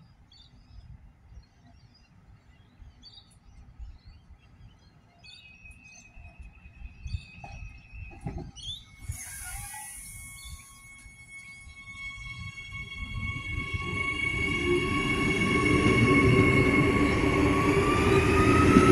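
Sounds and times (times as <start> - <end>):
thin high tone: 8.9 - 17.5.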